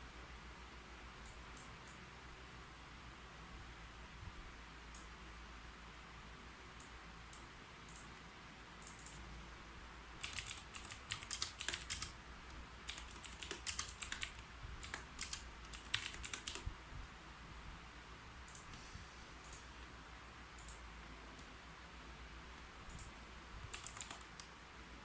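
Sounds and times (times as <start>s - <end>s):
computer keyboard typing: 10.2s - 12.2s, 12.8s - 16.7s, 22.9s - 24.5s.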